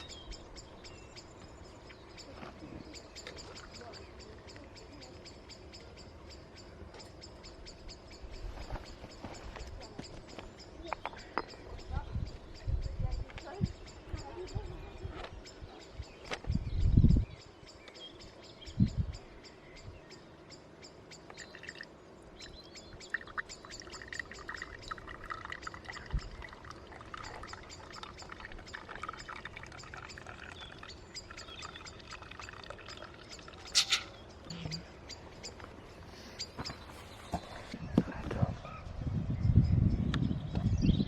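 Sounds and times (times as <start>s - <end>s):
birds chirping: 0.0s - 41.0s.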